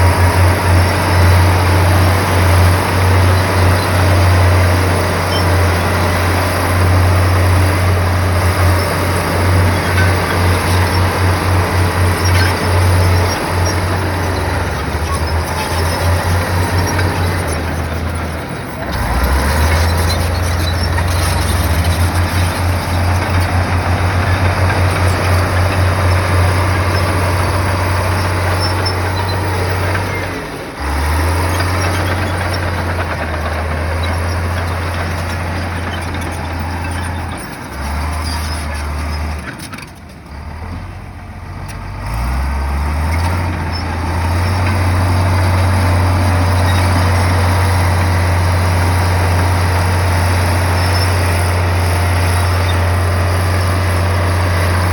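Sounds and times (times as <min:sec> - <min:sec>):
bulldozer diesel engine under load: 0:00.0 - 0:54.9.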